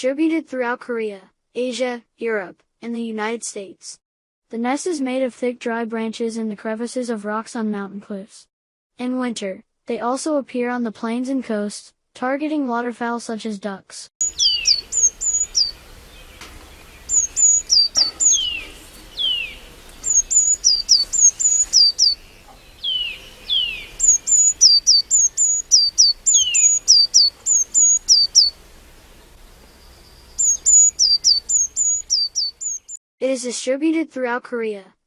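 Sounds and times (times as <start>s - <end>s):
birds chirping: 14.2s - 33.0s.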